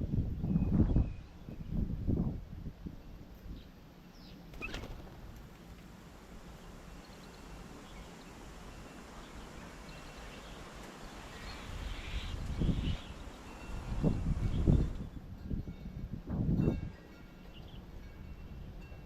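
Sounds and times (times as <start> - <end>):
low background noise: 0.0 - 15.4
faint birds chirping: 5.6 - 15.2.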